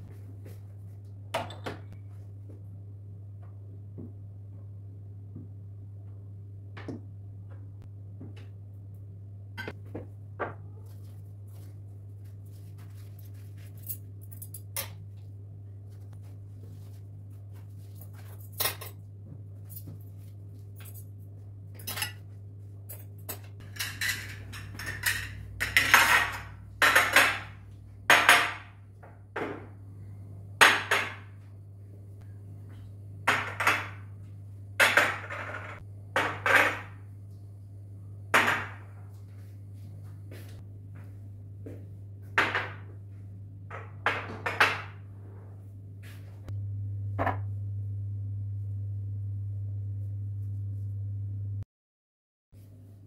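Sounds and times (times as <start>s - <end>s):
dishes and cutlery clinking: 21.8s - 22.3s, 22.9s - 27.1s.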